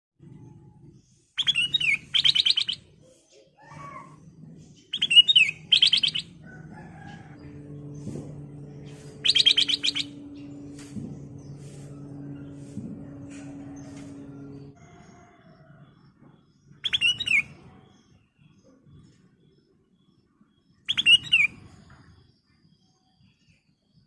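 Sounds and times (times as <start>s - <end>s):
bird singing whistles and trills: 1.4s - 3.0s, 4.9s - 6.3s, 9.2s - 10.6s, 16.8s - 17.6s, 20.8s - 21.8s
steady low hum: 3.7s - 14.8s.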